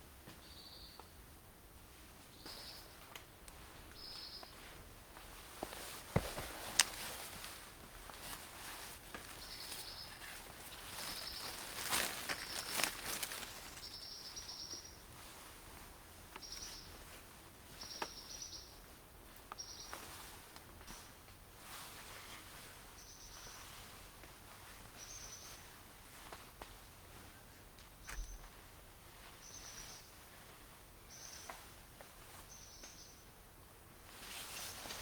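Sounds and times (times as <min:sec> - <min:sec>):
rustling: 0:02.4 - 0:17.3, 0:34.1 - 0:35.0.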